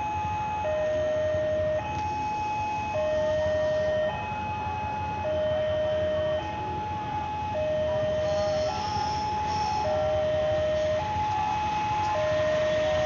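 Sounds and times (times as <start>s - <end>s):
level crossing two-tone alarm: 0.0s - 13.0s.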